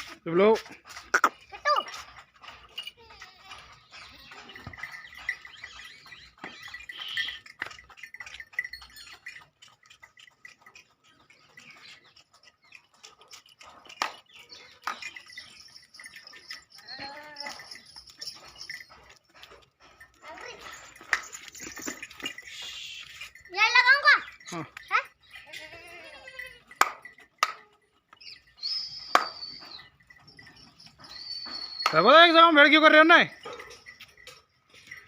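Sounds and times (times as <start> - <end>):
goat bleating: 16.8 - 17.7, 25.4 - 26.8.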